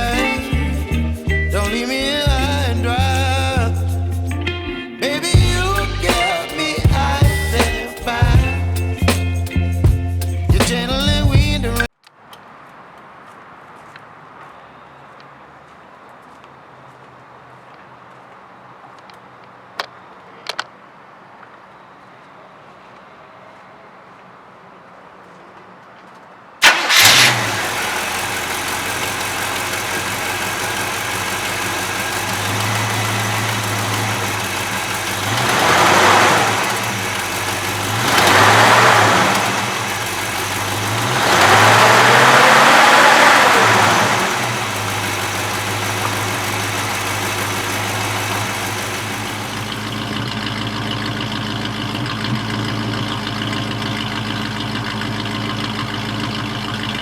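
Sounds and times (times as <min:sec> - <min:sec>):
car engine idling and revving: 0:00.0 - 0:04.3, 0:05.4 - 0:11.9, 0:26.6 - 0:57.0.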